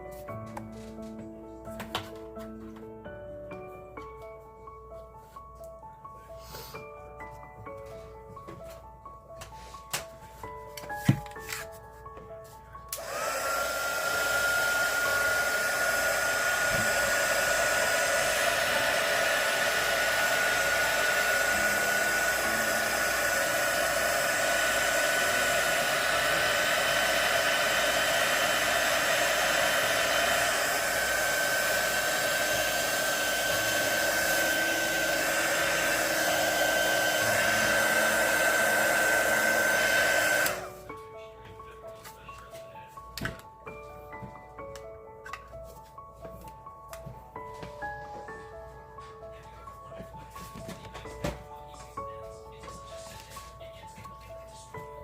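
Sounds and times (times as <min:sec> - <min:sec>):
hot-air blower whining: 0:12.9 - 0:40.9.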